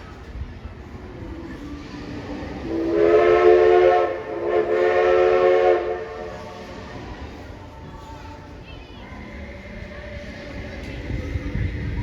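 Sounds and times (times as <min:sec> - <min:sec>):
steam locomotive chime whistle: 0:02.7 - 0:06.6.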